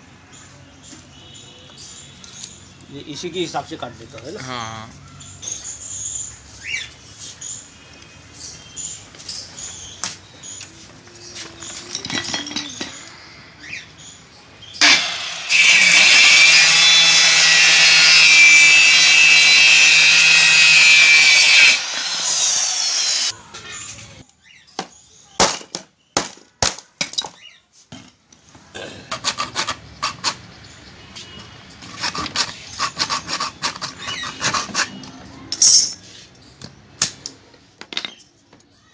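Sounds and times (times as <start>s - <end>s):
power saw cutting: 14.8s - 23.3s, 29.1s - 30.4s, 31.8s - 35.0s
scraping: 31.2s - 36.2s.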